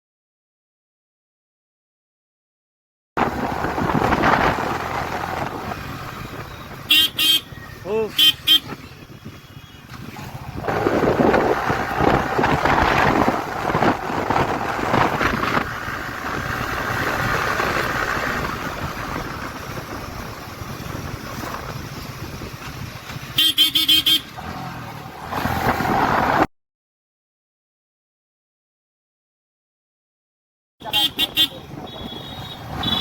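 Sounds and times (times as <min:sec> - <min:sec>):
motorcycle engine and road noise: 0:03.2 - 0:26.5, 0:30.8 - 0:33.0
vehicle horn honking: 0:06.8 - 0:09.9, 0:23.4 - 0:24.3, 0:30.8 - 0:33.0.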